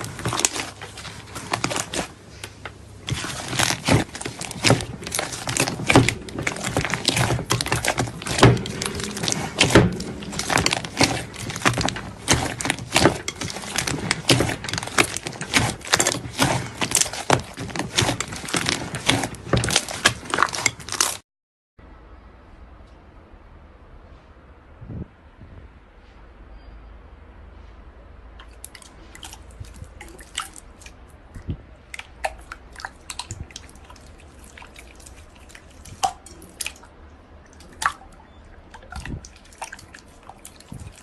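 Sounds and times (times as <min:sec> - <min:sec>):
slime crackling and popping: 0:03.0 - 0:21.2.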